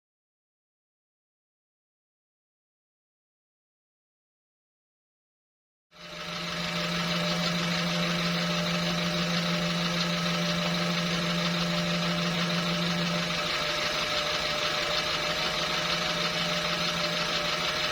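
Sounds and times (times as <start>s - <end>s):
car engine running: 6.0s - 17.9s.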